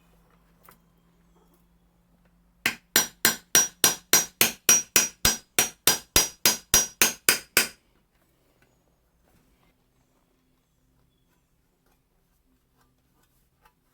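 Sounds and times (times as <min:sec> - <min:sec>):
hammer striking scythe blade: 0:02.7 - 0:07.8.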